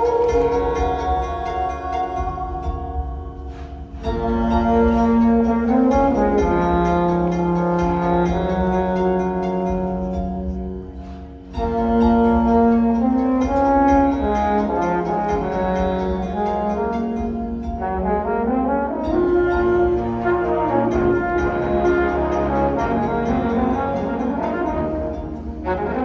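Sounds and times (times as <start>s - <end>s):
brass band playing held chords: 0.0s - 26.0s.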